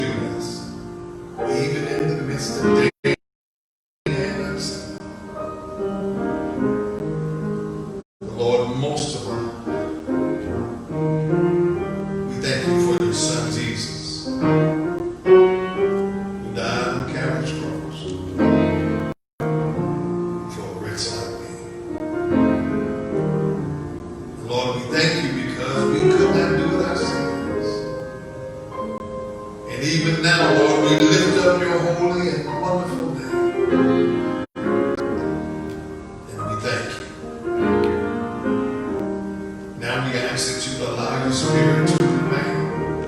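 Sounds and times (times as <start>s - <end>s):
piano playing slow chords: 0.0s - 3.2s, 4.1s - 43.0s
man praying: 8.3s - 9.6s, 24.4s - 27.9s, 29.7s - 33.4s, 39.8s - 42.9s.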